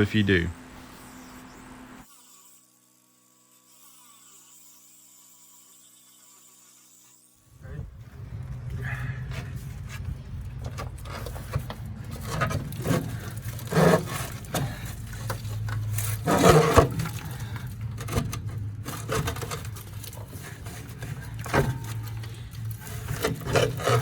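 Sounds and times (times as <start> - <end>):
steady low hum: 7.5 - 24.0
scraping and knocking on metal: 8.0 - 24.0.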